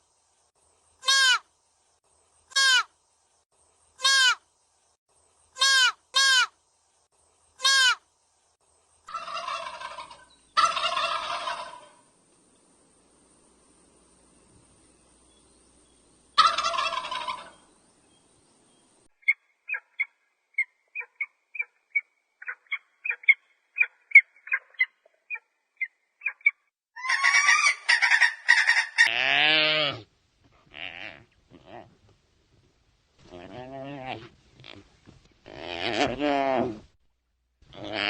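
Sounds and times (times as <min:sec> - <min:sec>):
turkey gobbling and clucking: 0:09.1 - 0:12.0, 0:16.4 - 0:17.6, 0:26.2 - 0:29.1.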